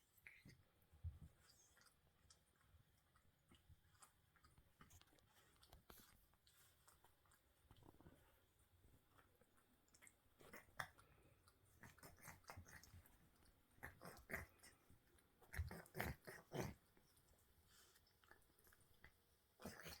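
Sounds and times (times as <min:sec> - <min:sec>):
cat licking fur: 0:00.0 - 0:20.0.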